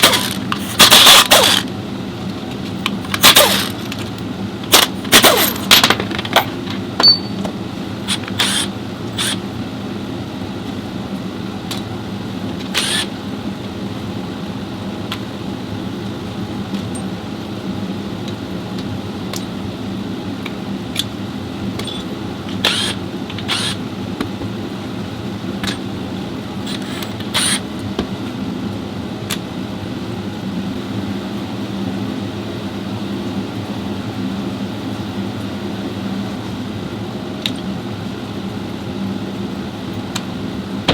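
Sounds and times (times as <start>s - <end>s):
fan humming: 0.0s - 40.9s
metal tools clinking: 4.7s - 7.5s.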